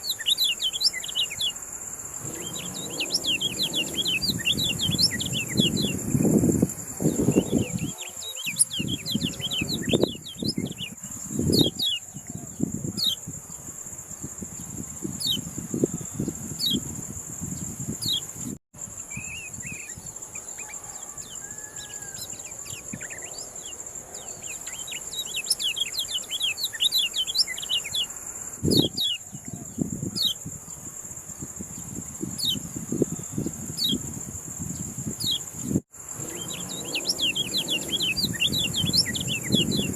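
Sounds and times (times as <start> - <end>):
songbird chirping: 0.0 - 13.3, 17.5 - 30.9, 34.8 - 39.9
high-pitched insect drone: 0.0 - 39.9.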